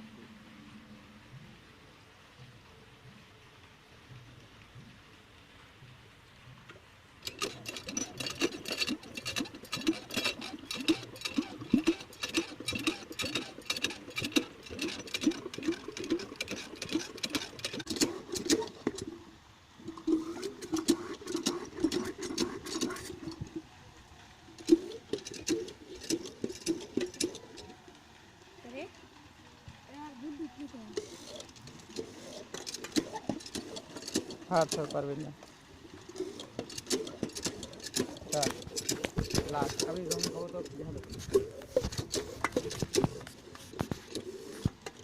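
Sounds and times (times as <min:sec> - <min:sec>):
diesel engine cranking clatter: 0:07.2 - 0:19.2, 0:19.8 - 0:23.7, 0:24.5 - 0:28.0, 0:30.8 - 0:45.0.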